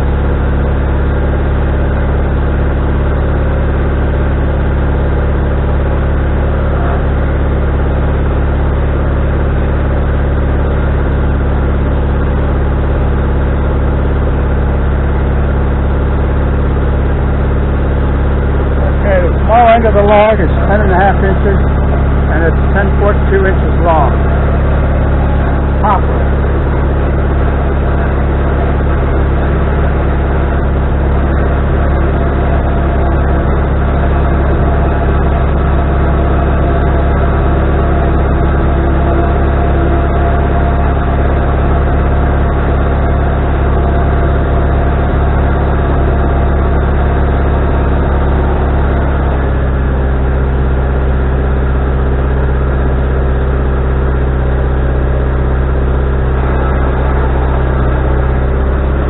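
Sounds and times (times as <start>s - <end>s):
sawmill engine droning: 0.0s - 59.0s.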